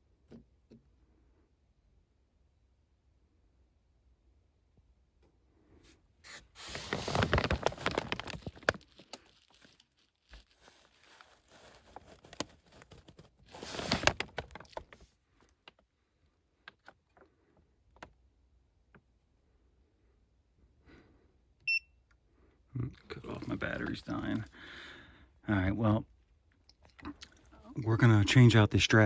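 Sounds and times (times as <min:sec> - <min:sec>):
rustling and scraping: 0:06.2 - 0:15.1.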